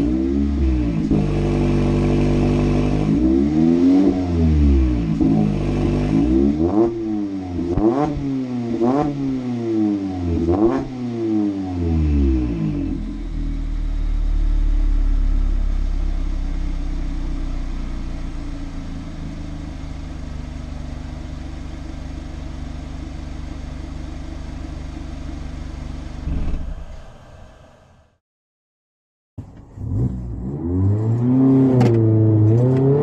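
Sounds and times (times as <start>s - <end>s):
car engine idling after rev: 13.4s - 28.2s.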